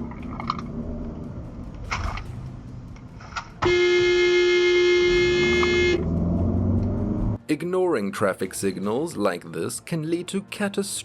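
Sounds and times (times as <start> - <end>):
road traffic noise: 0.0 - 7.4
car horn blast: 3.6 - 6.1.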